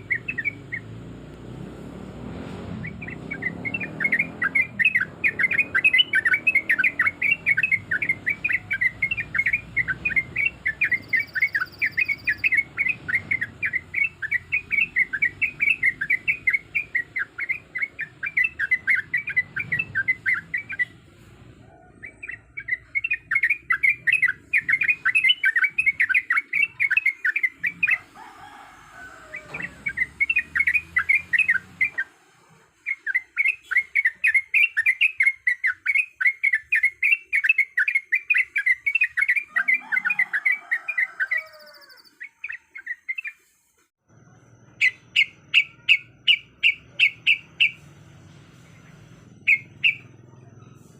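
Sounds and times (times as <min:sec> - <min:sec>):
bird singing bubbly chirps: 0:00.0 - 0:01.0, 0:02.8 - 0:20.9, 0:22.0 - 0:28.0, 0:29.9 - 0:32.1.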